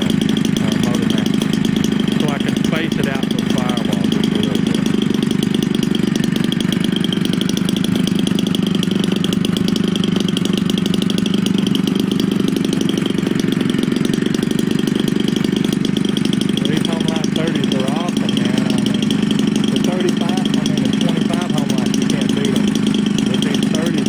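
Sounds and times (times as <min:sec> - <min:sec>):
two-stroke engine running: 0:00.0 - 0:24.0.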